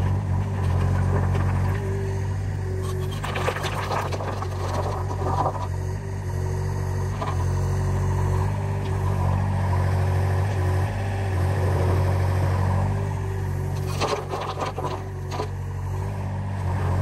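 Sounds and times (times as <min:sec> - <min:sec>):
diesel machine engine running: 0:00.0 - 0:17.0.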